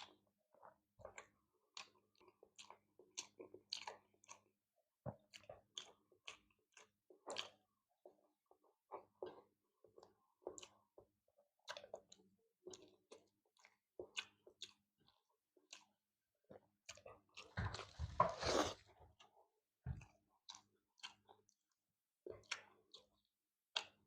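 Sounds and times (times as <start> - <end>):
person chewing: 1.2 - 4.5, 5.3 - 7.6, 12.8 - 16.0, 16.9 - 19.3, 22.4 - 23.2.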